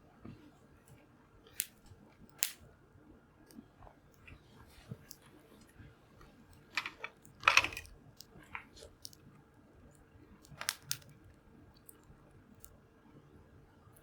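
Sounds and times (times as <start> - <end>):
wood fire crackling and popping: 10.4 - 11.2.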